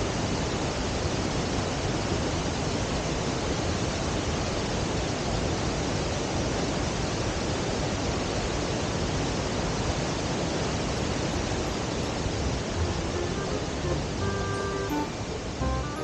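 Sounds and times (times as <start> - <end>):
waterfall roaring: 9.0 - 16.0.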